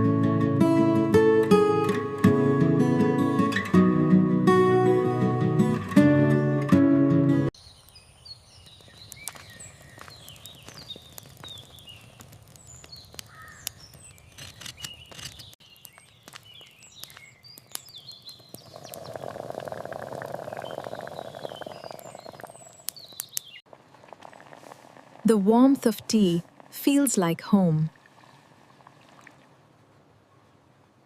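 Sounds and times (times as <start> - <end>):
small birds chirping: 7.6 - 24.6.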